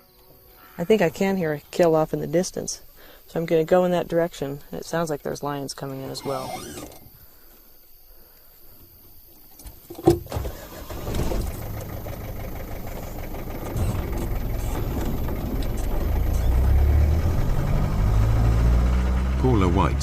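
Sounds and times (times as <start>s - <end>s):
car engine starting and running: 6.2s - 7.1s, 10.2s - 20.0s.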